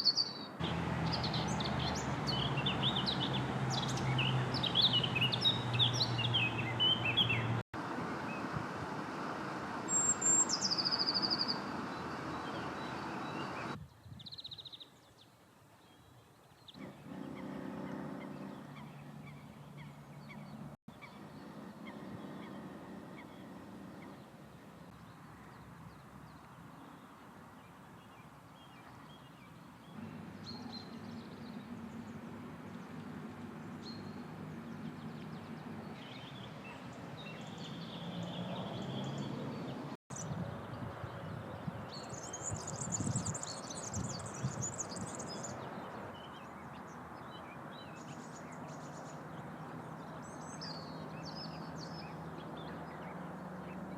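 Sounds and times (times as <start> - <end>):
wild birds calling: 0.0 - 13.8, 16.7 - 25.7
outdoor background noise: 0.0 - 53.9.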